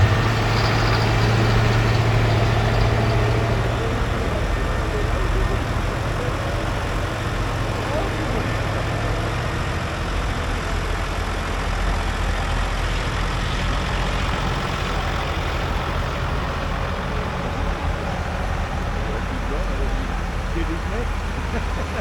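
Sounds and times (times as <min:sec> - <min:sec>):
tractor engine droning: 0:00.0 - 0:22.0.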